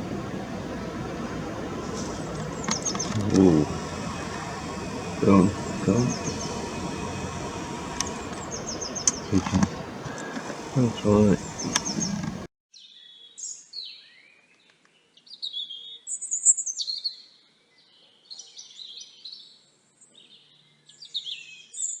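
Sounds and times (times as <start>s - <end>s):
songbirds chirping and singing: 0.0s - 12.5s.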